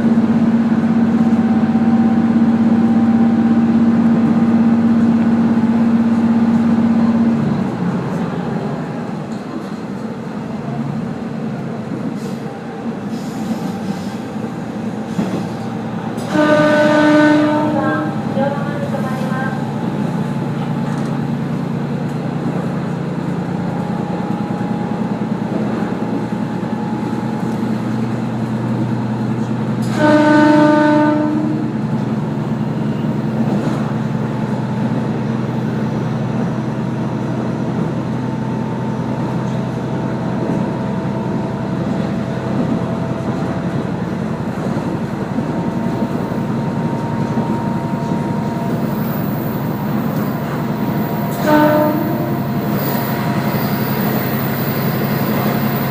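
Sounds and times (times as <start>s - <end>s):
diesel train engine and rail hum: 0.0s - 55.9s
train horn blast: 16.2s - 18.5s, 29.8s - 31.8s, 51.0s - 52.6s.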